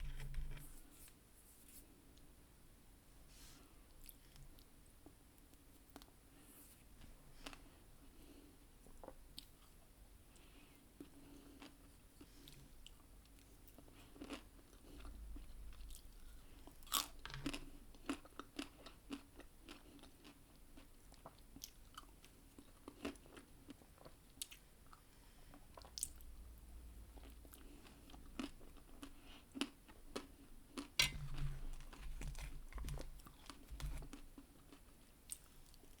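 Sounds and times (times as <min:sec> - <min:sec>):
crunchy chewing: 0:11.0 - 0:25.0, 0:27.2 - 0:36.0.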